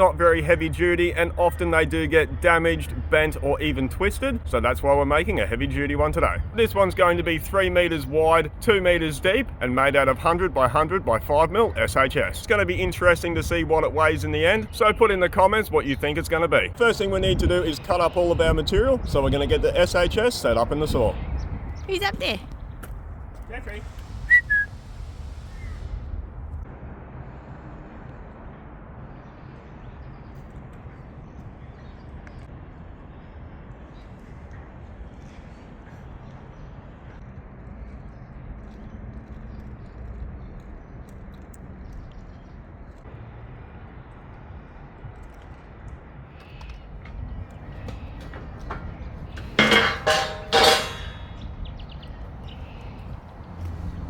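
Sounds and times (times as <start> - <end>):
light metal knocks and clinks: 47.0 - 51.5
loud metal clangs ringing: 47.8 - 51.5.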